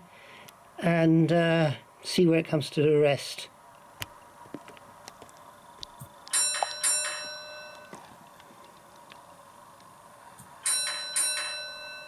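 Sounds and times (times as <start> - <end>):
bell ringing: 6.3 - 8.0, 10.6 - 12.0.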